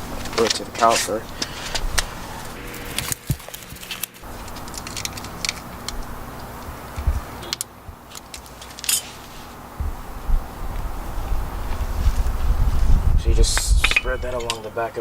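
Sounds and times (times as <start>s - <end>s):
light metallic clicks and clinks: 13.5s - 14.7s.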